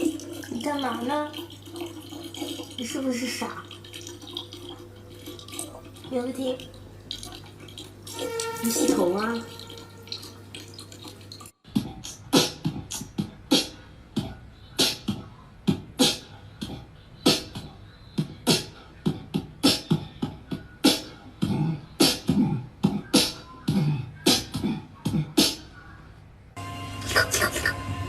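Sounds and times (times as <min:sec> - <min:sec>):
music with beatbox-style beat: 0:11.6 - 0:25.8.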